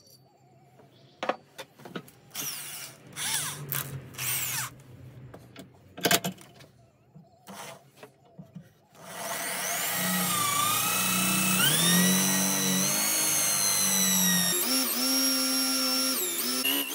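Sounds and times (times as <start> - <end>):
power drill bursts: 9.0 - 16.9.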